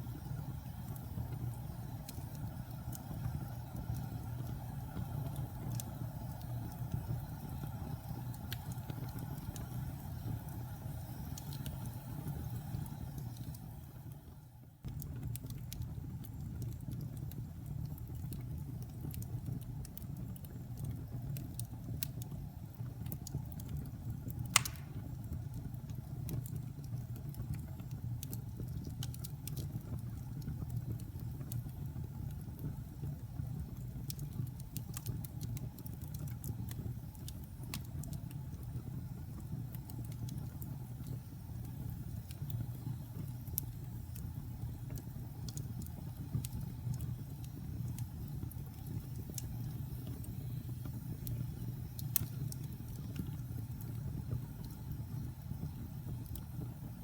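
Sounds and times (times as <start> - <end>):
fire rumbling in fireplace: 0.0 - 57.0
wood fire crackling: 0.0 - 57.0
sharp wood pop: 24.6 - 25.0.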